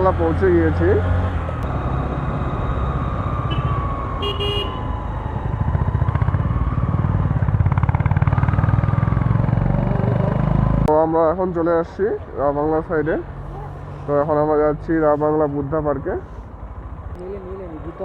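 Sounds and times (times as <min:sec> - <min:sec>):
motorcycle engine running: 0:01.6 - 0:10.8
motorcycle horn toot: 0:03.5 - 0:05.0.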